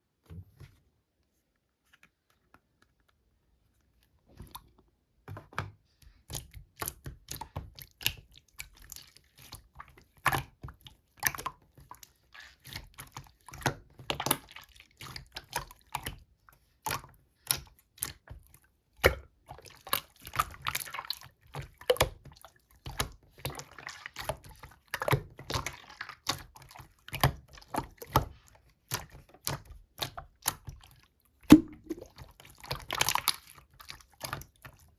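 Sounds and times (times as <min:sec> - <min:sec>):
slime squished by hand: 0:31.5 - 0:32.2.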